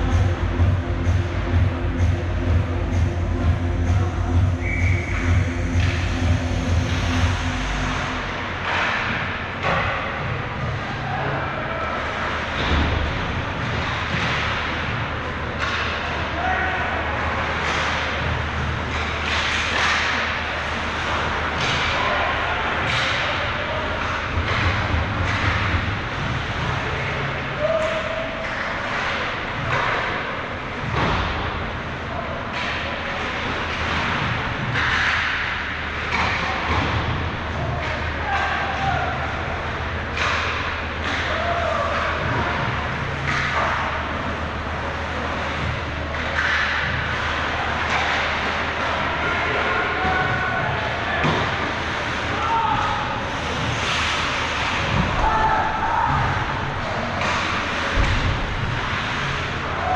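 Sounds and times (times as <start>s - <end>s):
low arena hum: 0.0s - 59.9s
hockey sticks and puck knocks: 8.6s - 10.2s, 12.2s - 16.3s, 17.2s - 26.8s, 32.5s - 59.9s
skates carving ice: 17.0s - 31.6s, 32.3s - 59.9s
skates scraping ice: 40.2s - 59.9s.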